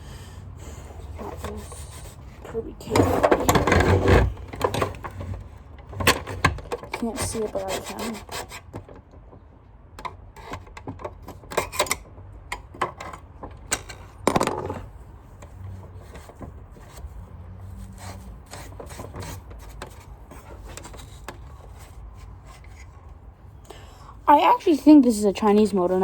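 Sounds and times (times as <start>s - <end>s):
rubbing on vacuum cleaner parts: 0.7s - 8.8s, 15.4s - 23.3s
vacuum cleaner parts clicking: 2.9s - 7.5s.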